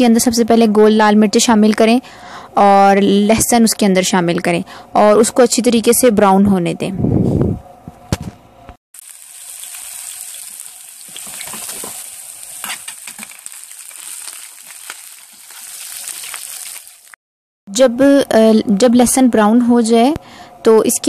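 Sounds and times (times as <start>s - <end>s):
garlic and chillies sizzling in oil: 9.0s - 17.2s.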